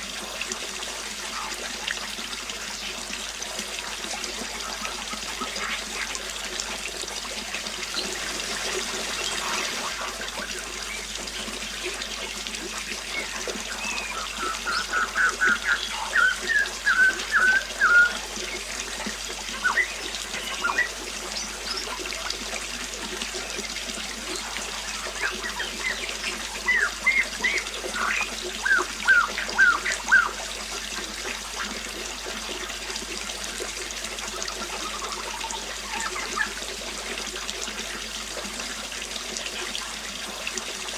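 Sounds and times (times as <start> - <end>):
water trickling: 0.0 - 40.9
songbird chirping: 13.0 - 18.7, 19.5 - 22.0, 24.4 - 30.4.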